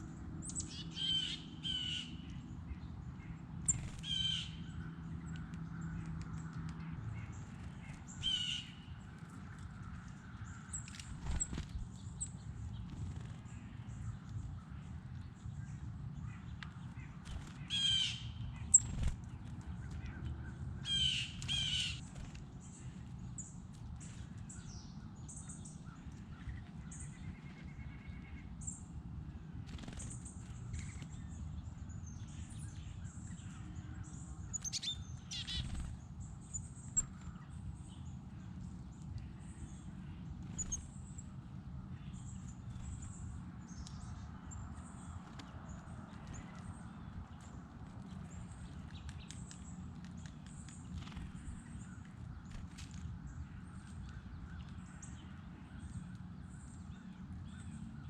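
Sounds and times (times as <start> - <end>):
high chirps of small birds: 0.4 - 58.0
harsh cawing bird calls: 3.8 - 4.9, 20.0 - 22.0.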